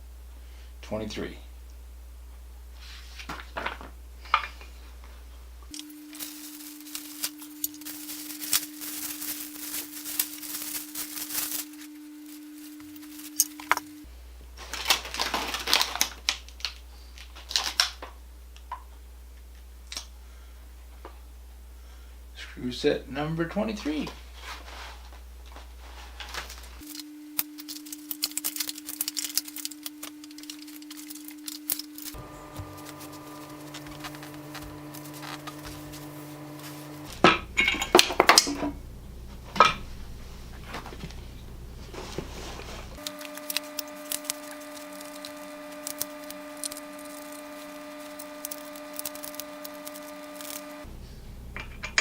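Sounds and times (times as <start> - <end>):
steady background hum: 0.0 - 52.0
metal parts clinking: 5.8 - 11.9, 26.8 - 32.2, 37.2 - 38.7.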